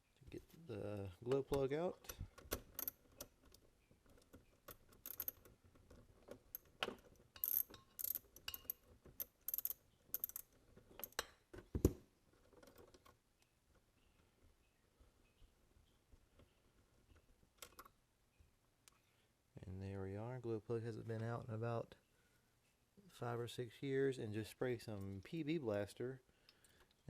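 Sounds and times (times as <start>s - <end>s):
wrench clicking and scraping on metal: 2.1s - 3.6s, 4.2s - 11.4s.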